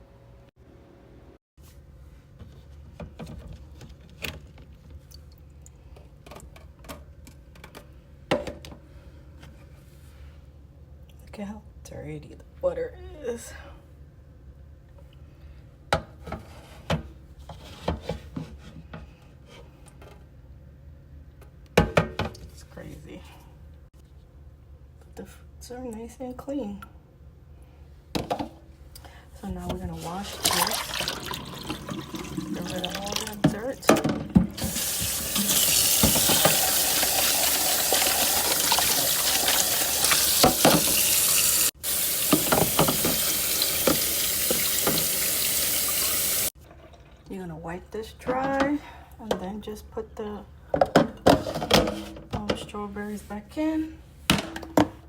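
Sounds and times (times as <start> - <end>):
tap water running into sink: 30.3 - 33.4, 34.6 - 46.5.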